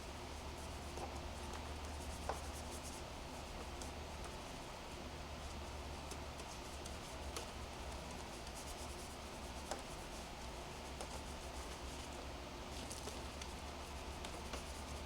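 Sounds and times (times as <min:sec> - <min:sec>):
rubbing and scratching on car paint: 0:06.4 - 0:15.0.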